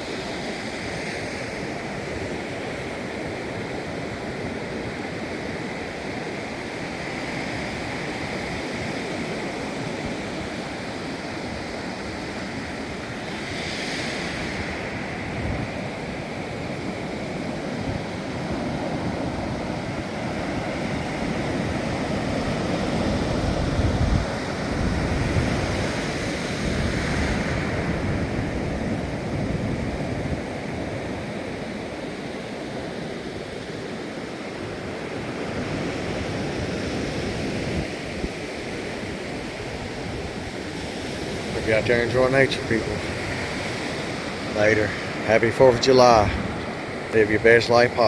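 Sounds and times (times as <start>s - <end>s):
surf washing onto beach: 0.0s - 48.0s
wind on microphone: 18.8s - 31.4s, 35.5s - 48.0s.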